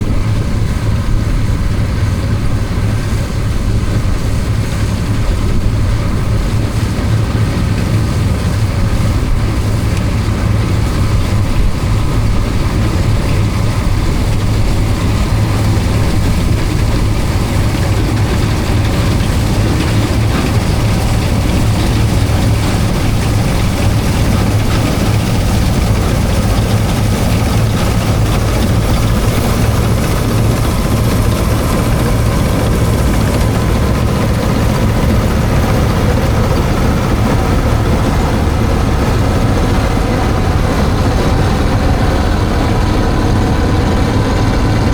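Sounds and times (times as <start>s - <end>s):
combine harvester engine humming: 0.0s - 44.9s.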